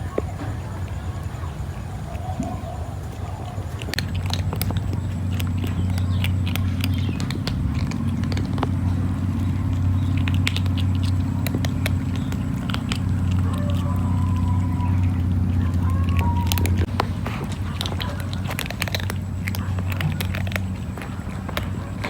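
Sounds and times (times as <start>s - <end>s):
kitten chewing food: 0.0s - 22.0s
steady low hum: 0.0s - 22.0s.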